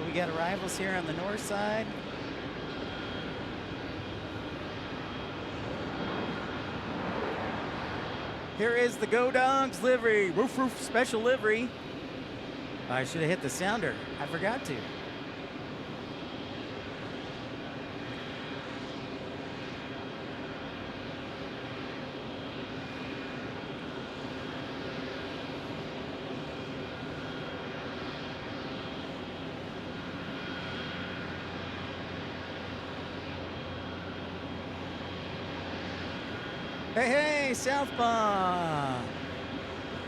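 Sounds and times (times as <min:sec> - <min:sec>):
jet engines running: 0:00.0 - 0:40.0.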